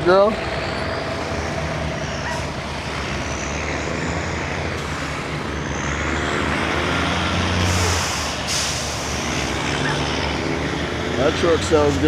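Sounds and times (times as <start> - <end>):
diesel truck engine drone: 0.0 - 12.0.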